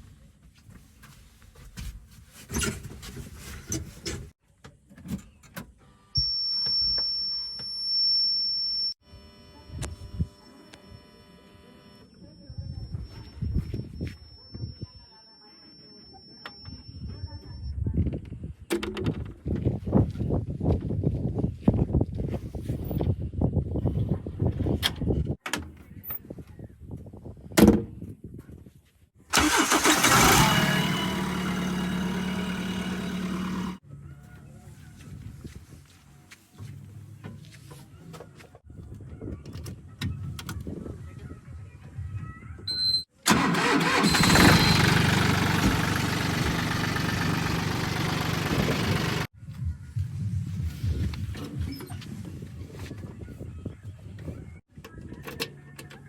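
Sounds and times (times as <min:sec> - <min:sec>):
diesel engine running: 0:29.3 - 0:33.8, 0:43.3 - 0:49.3
engine starting: 0:29.3 - 0:33.8, 0:43.3 - 0:47.7.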